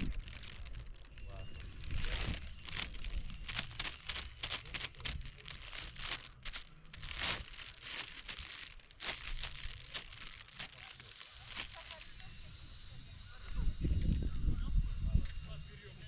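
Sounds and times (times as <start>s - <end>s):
crinkling and rustling: 0.0s - 12.3s.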